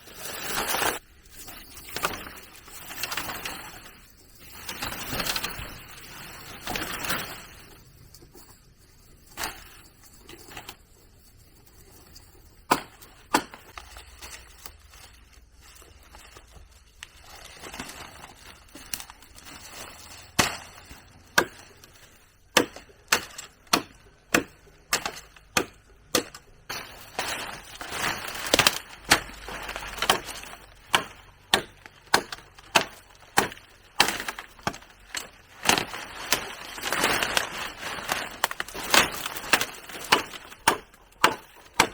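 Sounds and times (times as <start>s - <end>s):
chopping strikes on wood: 22.6s - 26.4s.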